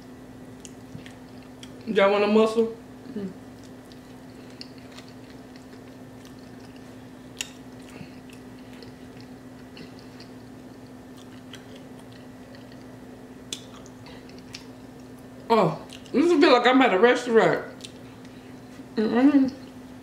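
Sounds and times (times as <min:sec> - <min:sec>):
steady low hum: 0:00.0 - 0:20.0
close chewing with wet mouth sounds: 0:00.5 - 0:01.9, 0:03.0 - 0:16.2, 0:17.7 - 0:18.5.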